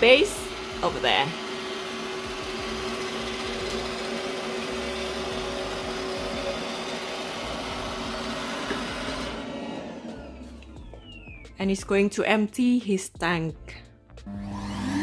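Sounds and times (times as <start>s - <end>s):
robot vacuum running: 0.0s - 11.0s, 14.3s - 15.0s
motor winding down whine: 0.0s - 11.4s, 14.3s - 15.0s.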